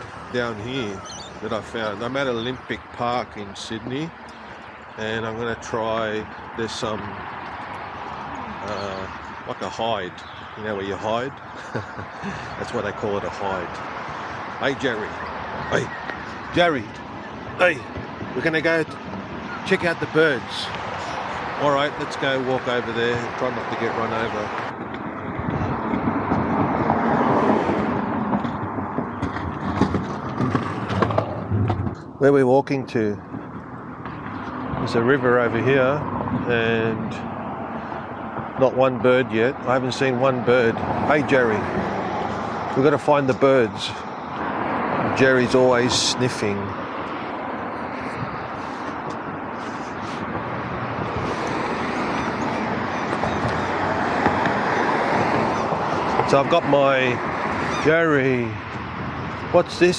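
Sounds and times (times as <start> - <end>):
road traffic noise: 0.0 - 59.9
vehicle approaching: 0.0 - 59.9
car passing close by: 25.4 - 31.8, 44.3 - 57.9.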